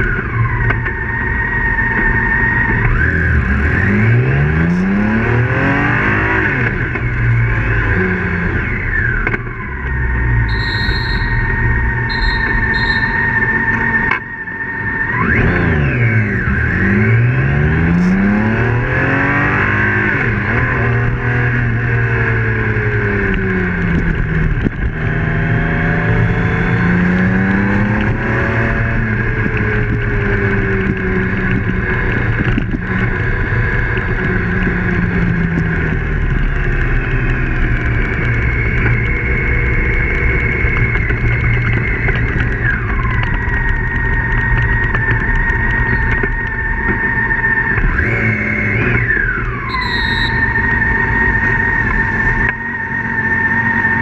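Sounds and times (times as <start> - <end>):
motorcycle engine accelerating: 0.0 - 54.0
steady high whine: 8.4 - 17.0, 49.0 - 54.0.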